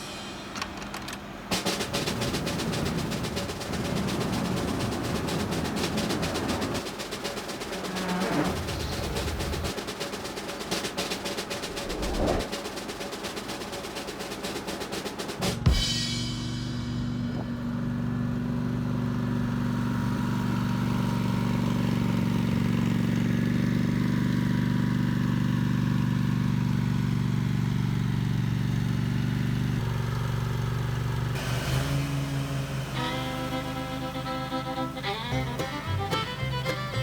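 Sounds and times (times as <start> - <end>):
music: 0.0 - 0.8, 1.5 - 17.6, 32.9 - 37.0
lawn tractor engine running: 0.2 - 15.4, 17.0 - 37.0.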